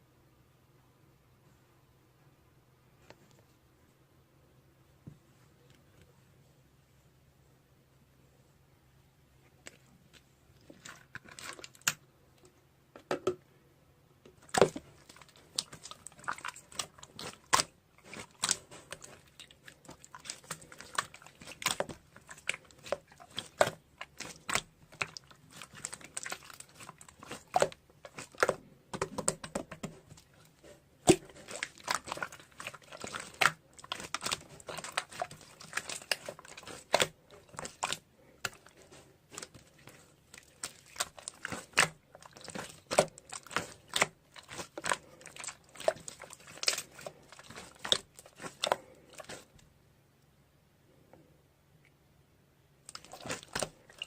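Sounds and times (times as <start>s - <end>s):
crinkling and crunching: 9.5s - 12.5s, 14.3s - 49.6s, 52.8s - 54.0s.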